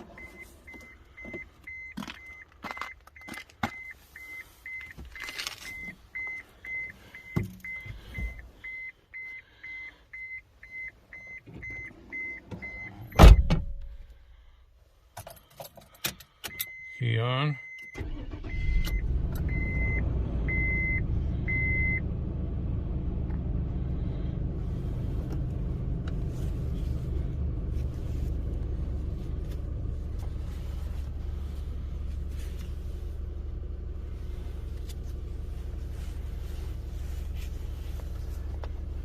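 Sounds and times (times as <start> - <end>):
car engine idling: 18.0 - 39.0.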